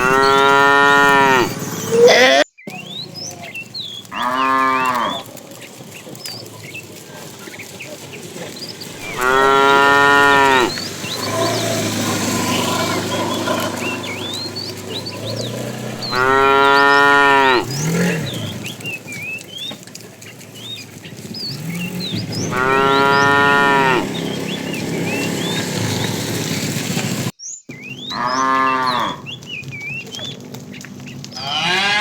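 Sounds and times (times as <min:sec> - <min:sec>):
quieter lower moos from herd: 0:00.0 - 0:02.1, 0:03.3 - 0:26.1, 0:28.1 - 0:29.3
cow mooing loudly: 0:00.0 - 0:02.4, 0:04.1 - 0:05.3, 0:08.9 - 0:18.8, 0:21.6 - 0:25.9, 0:28.1 - 0:29.3, 0:31.4 - 0:32.0.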